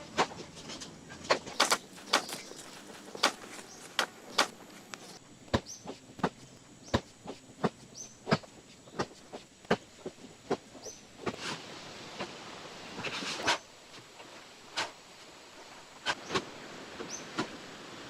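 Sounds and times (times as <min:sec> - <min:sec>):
sharp knocks: 0:01.5 - 0:05.2.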